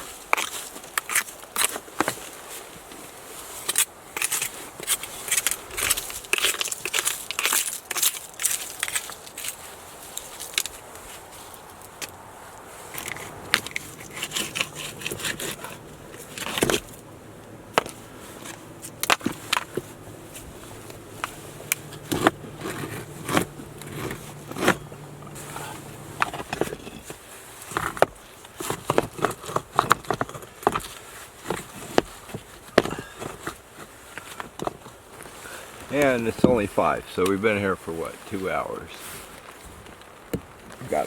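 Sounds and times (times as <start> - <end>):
faint low hum: 12.6 - 27.1
debris and boards knocking and scraping: 13.0 - 27.2.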